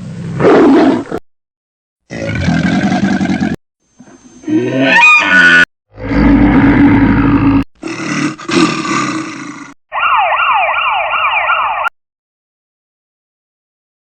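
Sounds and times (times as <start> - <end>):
electronic siren wailing: 9.9 - 11.9.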